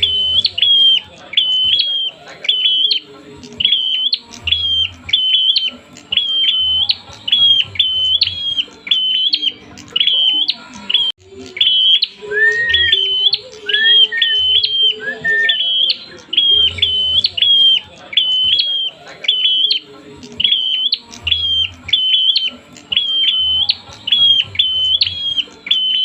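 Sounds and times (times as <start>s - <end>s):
bird sharp chirps: 0.0s - 26.0s.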